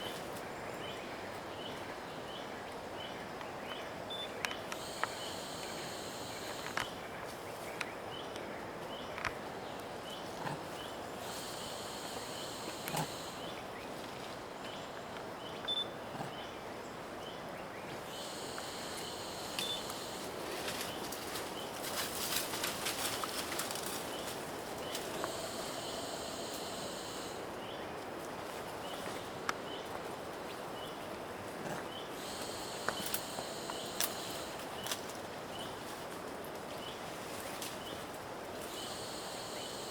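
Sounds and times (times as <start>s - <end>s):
high insect drone: 4.6s - 7.2s, 10.8s - 13.7s, 18.0s - 27.8s, 32.0s - 35.1s, 38.6s - 39.9s.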